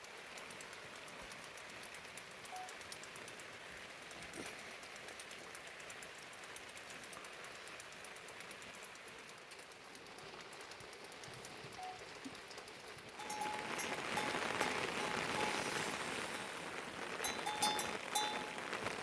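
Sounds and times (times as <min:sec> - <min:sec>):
small drops ticking: 0:00.0 - 0:19.0
steady rain: 0:00.0 - 0:19.0.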